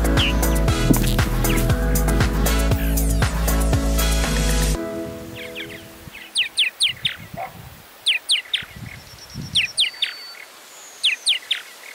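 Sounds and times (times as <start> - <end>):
music track: 0.0 - 6.2.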